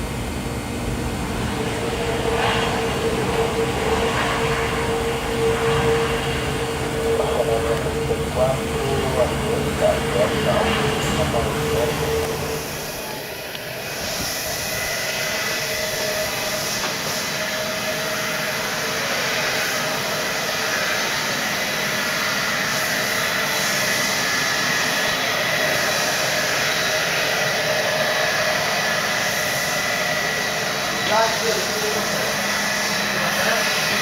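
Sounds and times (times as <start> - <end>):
high even whine: 0.0 - 34.0
jet engine rush: 0.0 - 34.0.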